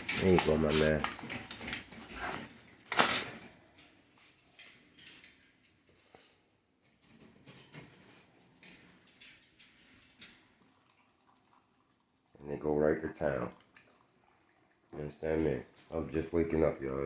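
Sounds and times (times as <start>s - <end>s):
food bowl clattering: 0.0s - 3.6s
dogs eating: 10.4s - 16.8s.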